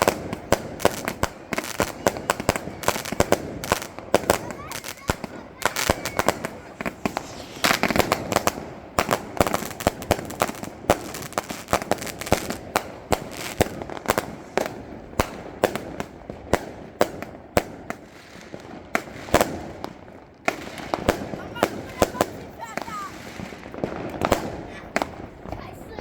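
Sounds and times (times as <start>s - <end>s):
firecrackers banging: 0.0s - 26.0s
steady crackle: 1.0s - 14.9s.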